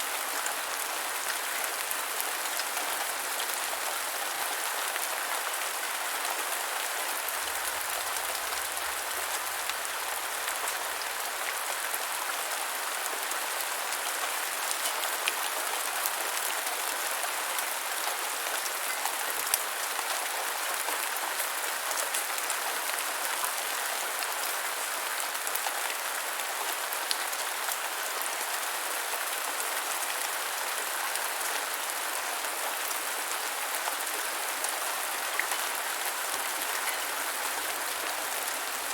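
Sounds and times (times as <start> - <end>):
gentle rain hissing: 33.3 - 38.9.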